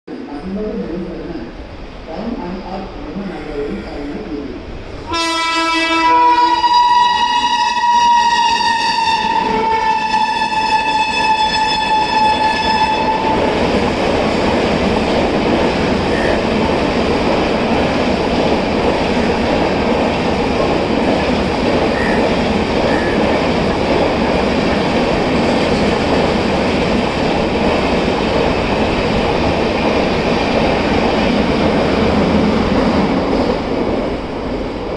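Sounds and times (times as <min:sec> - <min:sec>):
train coaches running past: 0:00.1 - 0:34.9
shrill locomotive horn: 0:05.1 - 0:13.5, 0:16.1 - 0:16.6, 0:21.9 - 0:23.3.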